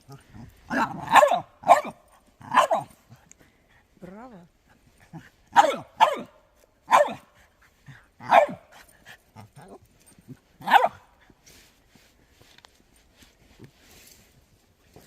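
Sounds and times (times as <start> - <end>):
dog yowling bark-like calls: 0.7 - 2.9, 5.5 - 6.3, 6.9 - 7.2, 10.6 - 11.0.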